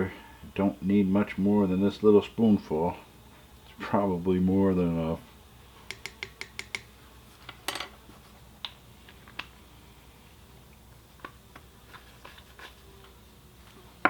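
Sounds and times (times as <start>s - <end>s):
spoon tapping cup: 5.9s - 6.9s.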